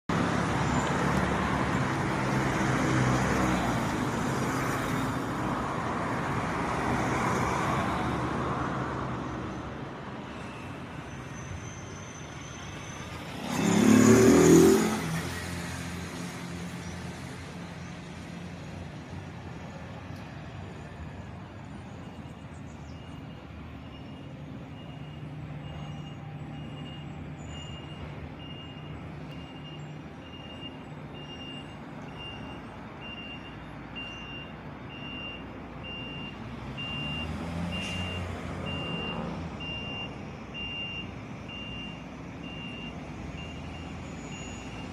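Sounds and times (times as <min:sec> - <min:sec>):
loud vehicle passing: 0:00.1 - 0:21.5, 0:36.1 - 0:40.0
traffic passing: 0:00.1 - 0:44.9.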